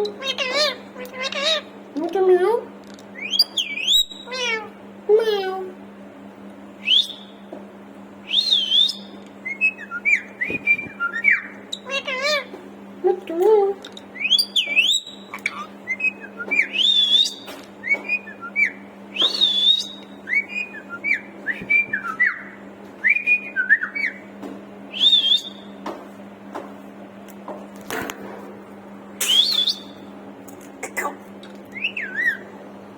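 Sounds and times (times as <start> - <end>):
steady low hum: 0.0 - 32.9
parrot whistling: 3.2 - 4.6, 6.8 - 7.4, 8.3 - 12.5, 14.2 - 24.2, 24.9 - 25.7, 29.2 - 30.0, 31.7 - 32.5.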